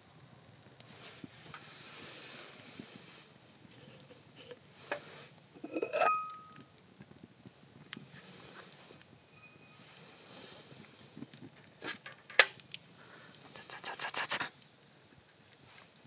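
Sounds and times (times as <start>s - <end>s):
ringing metallic clink: 5.7s - 6.6s, 9.3s - 9.8s.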